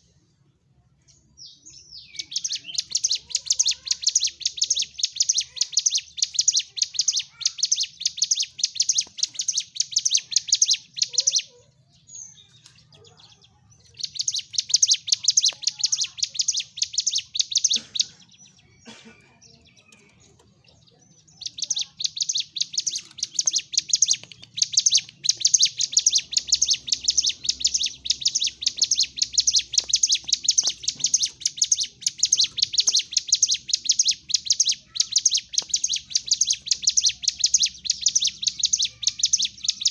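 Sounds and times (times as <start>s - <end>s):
songbird chattering song: 0.0s - 39.9s.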